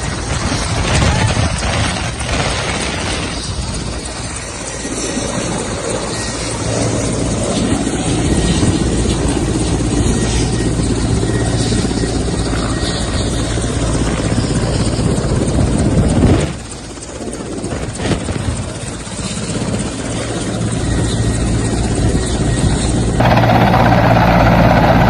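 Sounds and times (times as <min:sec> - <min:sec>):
mechanical drone with low flutter: 0:20.4 - 0:25.0.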